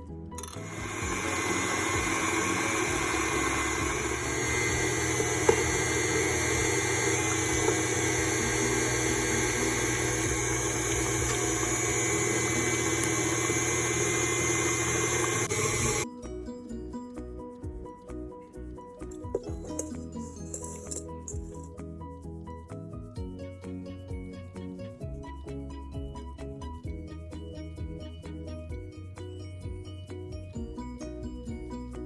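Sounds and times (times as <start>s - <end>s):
kitchen appliance humming and whirring: 0.4s - 16.1s, 19.2s - 21.7s.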